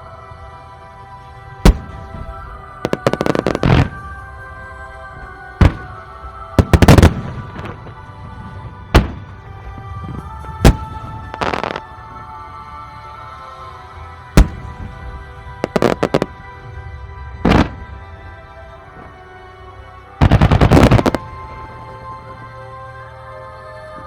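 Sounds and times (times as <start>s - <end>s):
background music: 0.0s - 24.0s
crackling firework volleys: 1.6s - 12.6s, 14.4s - 19.5s, 20.1s - 22.2s
fireworks bangs: 1.7s - 4.2s, 5.2s - 9.5s, 10.4s - 11.9s, 14.4s - 16.6s, 17.4s - 18.2s, 20.2s - 21.7s.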